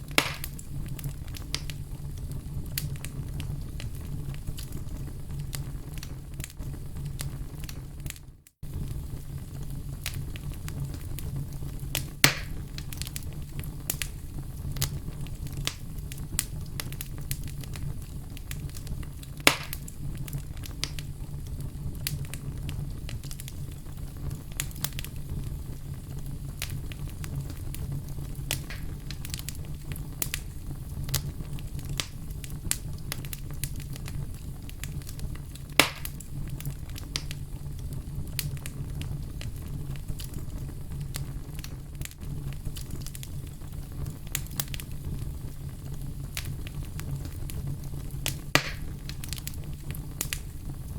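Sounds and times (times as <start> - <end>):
fire crackling: 0.0 - 50.9
loud pops: 0.1 - 0.6, 12.2 - 12.6, 19.4 - 19.8, 28.6 - 29.0, 35.8 - 36.2, 48.6 - 49.0.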